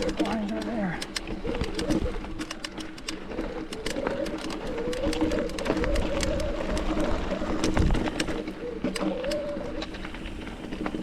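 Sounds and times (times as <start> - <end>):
bike clicks and rattles: 0.0 - 11.0.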